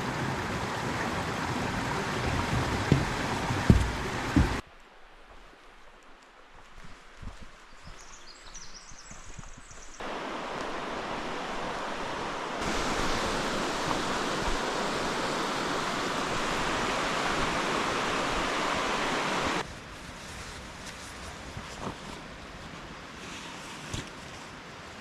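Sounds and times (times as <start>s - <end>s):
river water rushing: 0.0s - 4.6s, 10.0s - 19.6s.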